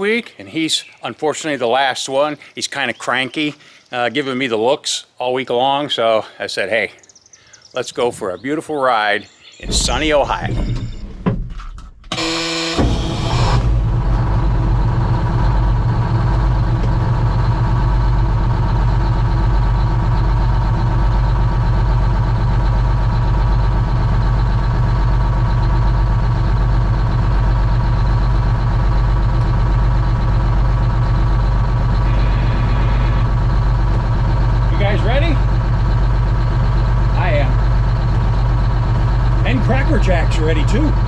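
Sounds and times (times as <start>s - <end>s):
diesel engine idling: 9.6s - 10.7s, 12.1s - 41.0s
starter motor cranking: 9.7s - 41.0s.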